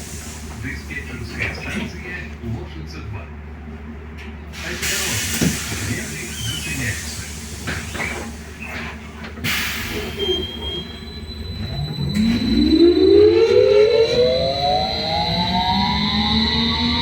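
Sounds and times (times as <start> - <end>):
air hiss of doors closing: 4.6 - 10.4
electric traction drive whining: 11.2 - 17.0.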